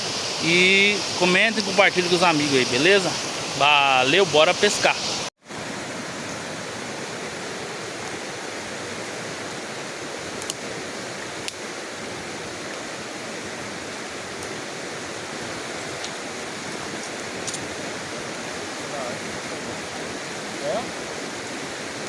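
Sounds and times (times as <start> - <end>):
creek water running over rocks: 0.0 - 22.0.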